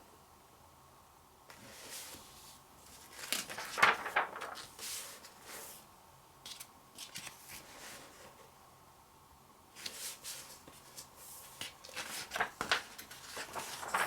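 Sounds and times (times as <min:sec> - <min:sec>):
magazine pages turning: 0:02.9 - 0:05.7, 0:06.5 - 0:07.7, 0:09.8 - 0:14.0.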